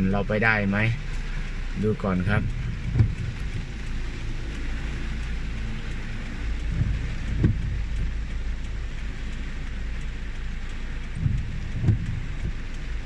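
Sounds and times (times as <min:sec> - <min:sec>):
low rumble: 0:00.0 - 0:13.0
steady rain falling: 0:00.0 - 0:13.0
dull thump: 0:02.9 - 0:03.2, 0:11.2 - 0:12.2.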